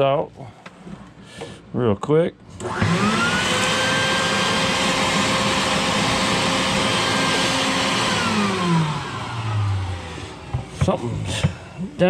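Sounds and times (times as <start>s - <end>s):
vacuum cleaner running: 2.5s - 11.9s.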